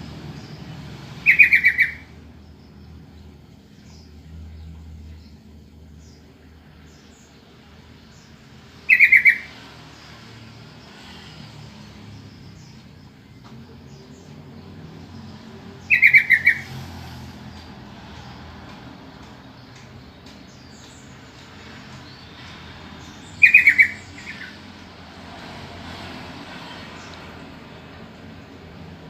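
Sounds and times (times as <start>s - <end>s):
bulbul calling: 1.2s - 2.2s, 8.8s - 9.6s, 15.8s - 16.8s, 23.3s - 24.6s.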